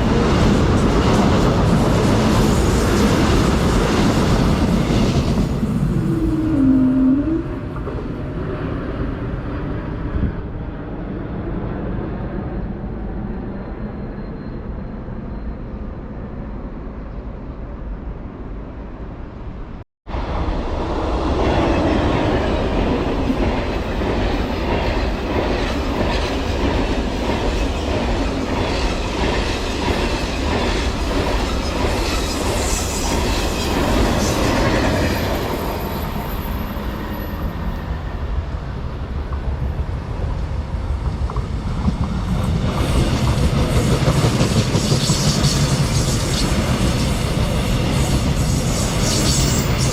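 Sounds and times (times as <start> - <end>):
outdoor noise: 0.0 - 49.9
train wheels clattering on rails: 21.7 - 37.7, 39.1 - 49.9.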